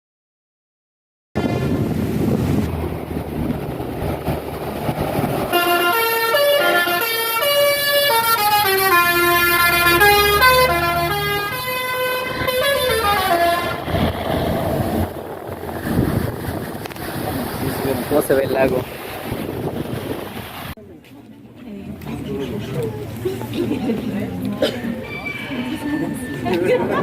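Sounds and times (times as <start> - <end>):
wind rush: 1.4 - 6.0, 11.9 - 20.8.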